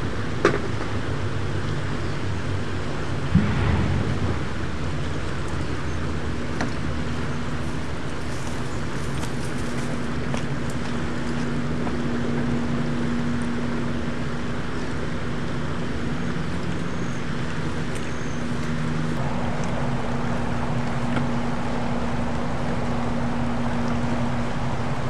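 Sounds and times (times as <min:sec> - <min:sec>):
rushing noise: 0:03.3 - 0:06.5
low hum: 0:03.3 - 0:07.3.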